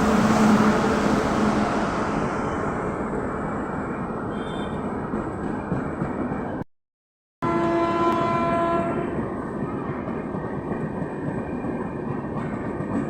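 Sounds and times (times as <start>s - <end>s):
train rumbling on rails: 0.0s - 6.6s, 7.4s - 13.0s
train horn: 4.3s - 4.8s, 7.4s - 9.2s.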